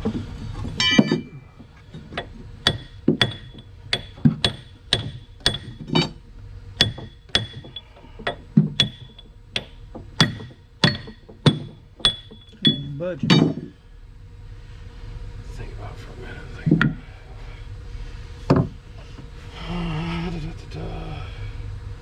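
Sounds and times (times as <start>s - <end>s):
hammer striking steel: 0.8s - 1.4s, 2.0s - 6.2s, 6.8s - 13.7s.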